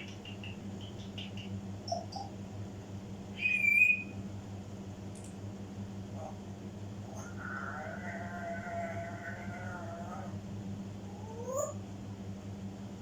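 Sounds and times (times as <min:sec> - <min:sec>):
steady low hum: 0:00.0 - 0:13.0
parrot chirping and whistling: 0:03.4 - 0:04.2.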